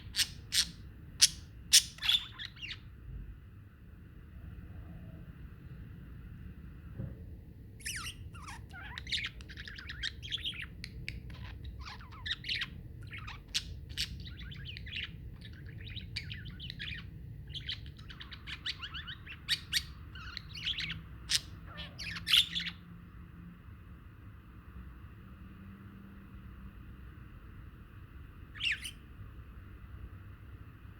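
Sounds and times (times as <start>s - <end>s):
budgerigars chattering: 0.0s - 2.8s, 7.9s - 22.8s, 28.6s - 29.0s
steady low hum: 0.0s - 30.9s.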